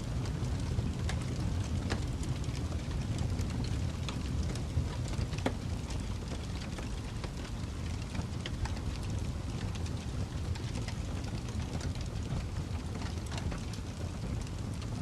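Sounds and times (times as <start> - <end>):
fireplace crackling: 0.0 - 15.0.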